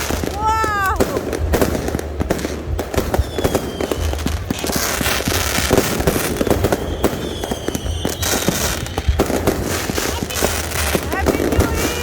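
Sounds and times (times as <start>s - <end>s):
fireworks bangs and crackles: 0.0s - 12.0s
whistling firework shell: 3.1s - 10.1s.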